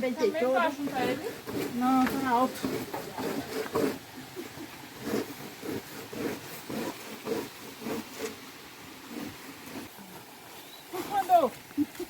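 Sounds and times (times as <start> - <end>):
corn scraping on grater: 5.0 - 8.4.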